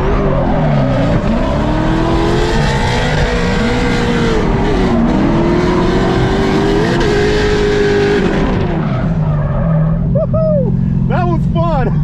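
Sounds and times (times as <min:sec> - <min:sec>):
car engine at high revs: 0:00.0 - 0:12.0
tires skidding and squealing: 0:06.9 - 0:10.3.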